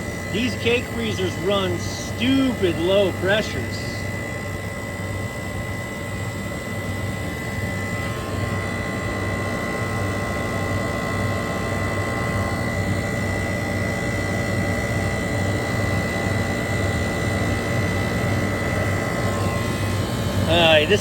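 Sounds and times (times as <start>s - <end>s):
thin high whine: 0.0s - 4.8s
refrigeration unit motor hum: 0.0s - 21.0s.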